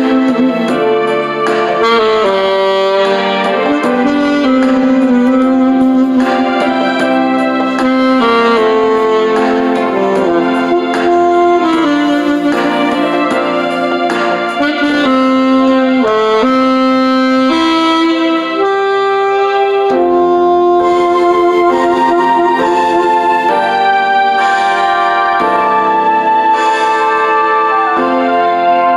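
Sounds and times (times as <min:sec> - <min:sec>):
musical accompaniment: 0:00.0 - 0:28.9
saxophone slow melody: 0:00.0 - 0:28.9.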